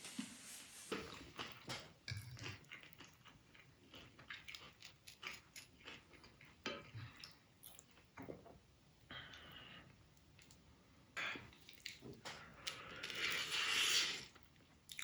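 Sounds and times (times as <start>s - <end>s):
chewing: 0.9s - 8.4s.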